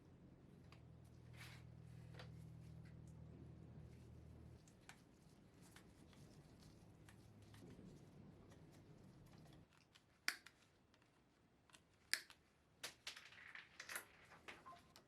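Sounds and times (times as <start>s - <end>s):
faint low hum: 0.0s - 9.8s
small tools clicking and snipping: 11.7s - 12.4s.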